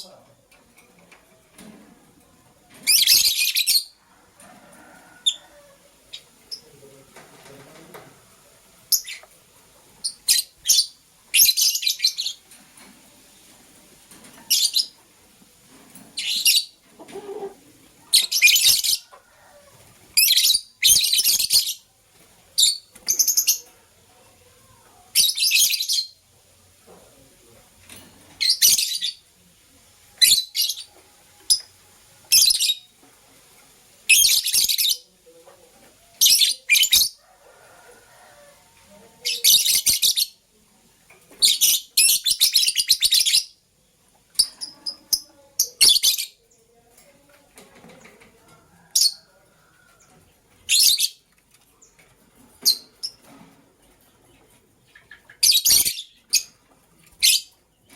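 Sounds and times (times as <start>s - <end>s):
lovebirds chirping: 8.9s - 9.4s, 10.0s - 12.6s, 16.2s - 19.5s, 20.1s - 21.9s, 22.6s - 26.3s, 30.2s - 32.9s, 36.2s - 37.3s, 41.4s - 47.2s, 48.9s - 57.9s.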